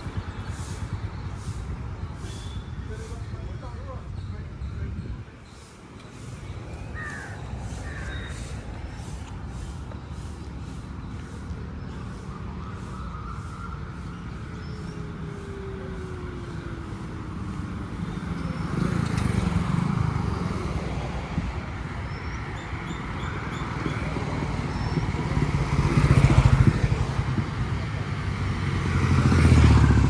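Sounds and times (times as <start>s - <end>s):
cars and motorcycles passing: 0.0s - 4.6s, 5.4s - 30.0s.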